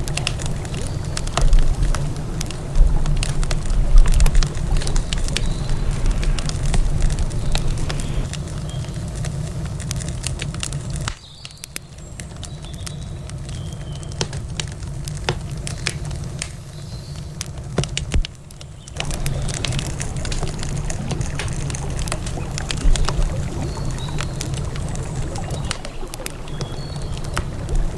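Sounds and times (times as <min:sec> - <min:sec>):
low steady rumble: 0:00.0 - 0:08.3, 0:19.0 - 0:27.9
campfire crackling: 0:00.0 - 0:27.9.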